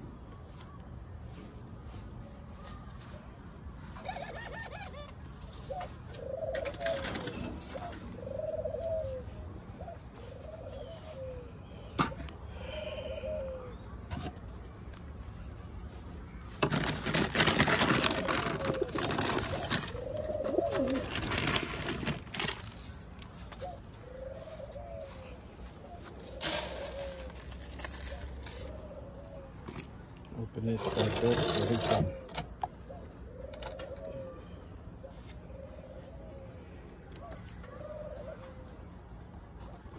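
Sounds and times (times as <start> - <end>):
wing flapping and rustling: 3.7 - 9.4, 14.1 - 28.8
pigeons cooing: 3.7 - 16.0, 16.7 - 39.9.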